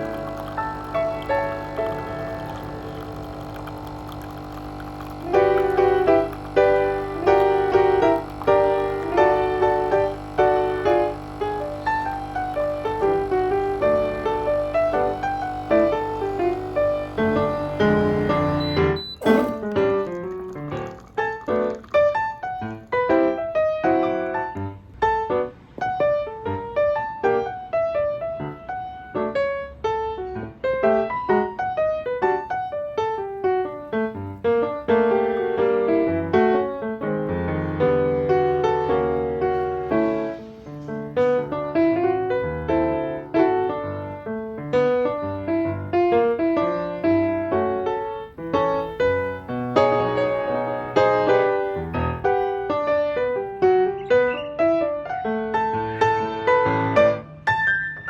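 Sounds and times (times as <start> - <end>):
piano music: 0.0 - 58.0.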